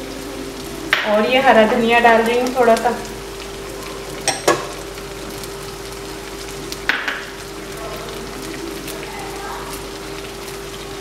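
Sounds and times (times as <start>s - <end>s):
food sizzling in hot oil: 0.0s - 11.0s
utensil clicking against pan: 4.2s - 4.8s.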